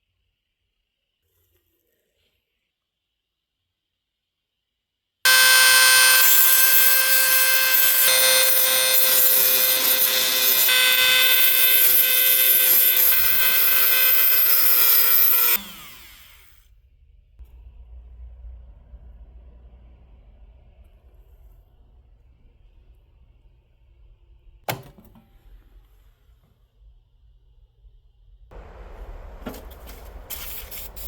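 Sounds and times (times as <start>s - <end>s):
rotary power tool whining: 5.3s - 16.6s.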